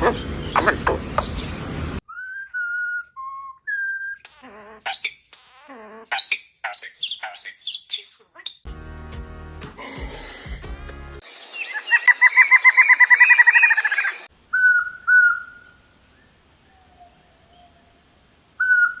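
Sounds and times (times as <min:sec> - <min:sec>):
bird whistled notes: 0:11.6 - 0:15.6.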